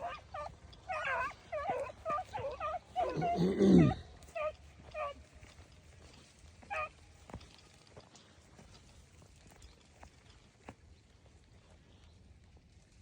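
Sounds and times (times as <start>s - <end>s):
hounds baying and yelping: 0.0s - 7.5s.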